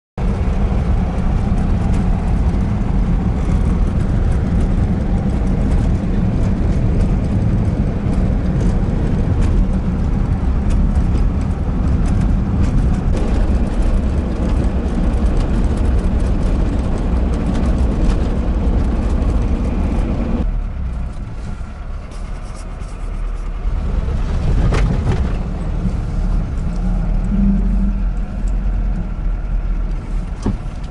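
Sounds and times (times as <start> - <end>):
van engine rumble: 0.2 - 30.9
body knocks and rattles: 0.4 - 20.4.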